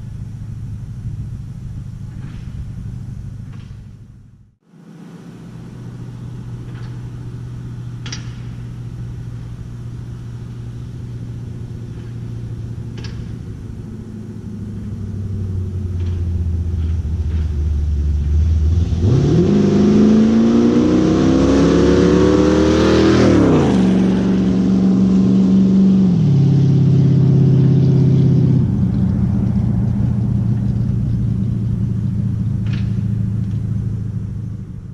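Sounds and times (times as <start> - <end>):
truck engine rumbling and revving: 0.0 - 34.9.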